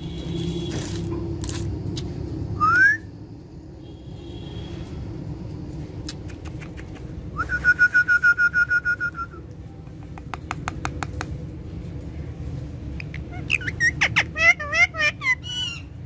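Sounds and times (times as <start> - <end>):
parrot calling: 13.0 - 16.0.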